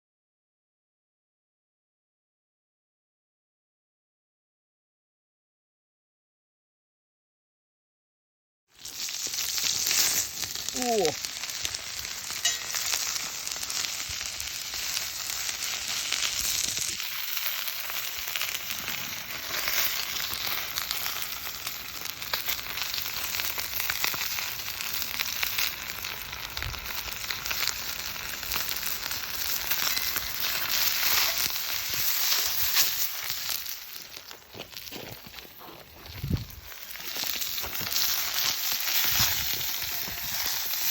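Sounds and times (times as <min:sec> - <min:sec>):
chicken sizzling in a frying pan: 0:08.7 - 0:34.9, 0:36.1 - 0:40.9.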